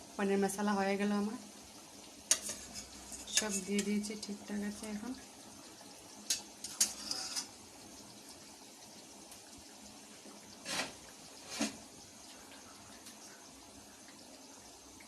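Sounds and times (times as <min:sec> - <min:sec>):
gravy bubbling in a pan: 0:00.0 - 0:15.0.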